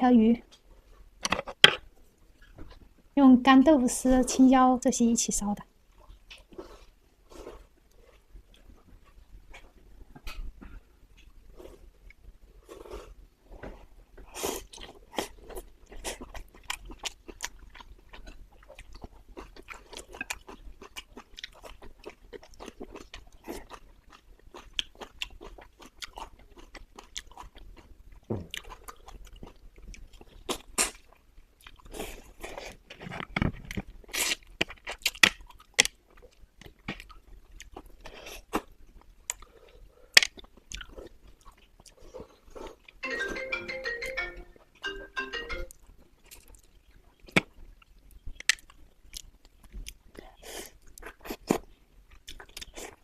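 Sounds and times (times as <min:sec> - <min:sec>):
chewing and biting food: 0:14.2 - 0:43.0, 0:46.2 - 0:53.0.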